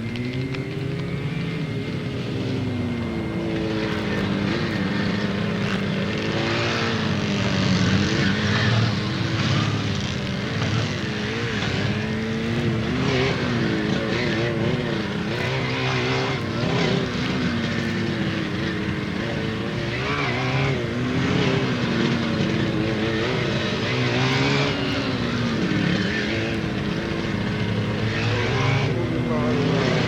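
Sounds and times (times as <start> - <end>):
motorcycle engines accelerating: 0.0 - 30.0.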